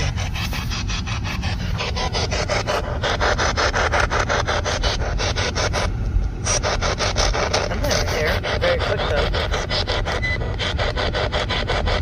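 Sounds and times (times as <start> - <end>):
low rumble: 0.0 - 12.0
radio static bursts: 6.5 - 12.0.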